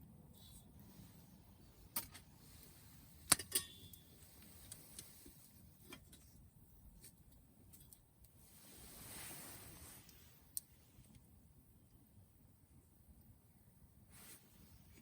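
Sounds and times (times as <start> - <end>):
brief metallic ring: 3.4 - 4.0.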